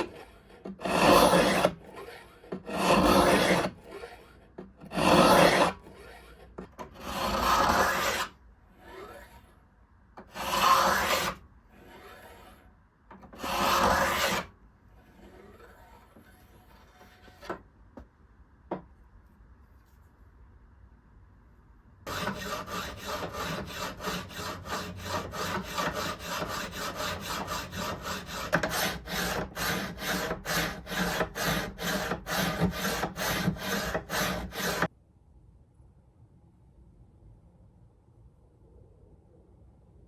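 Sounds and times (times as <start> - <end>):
file rasping strokes: 0.0 - 9.6, 10.2 - 12.7, 13.3 - 17.5, 22.1 - 34.9.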